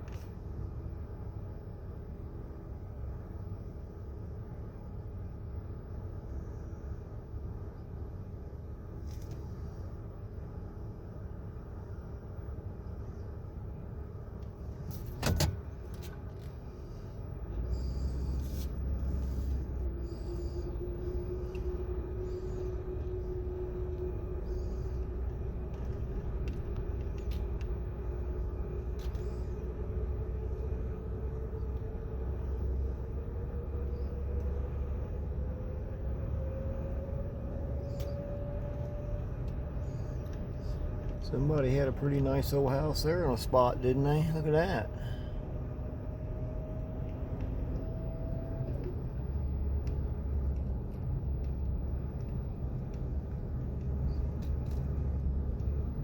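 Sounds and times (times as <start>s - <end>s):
engine and road rumble: 0.0s - 56.0s
faint rising whine: 16.1s - 56.0s.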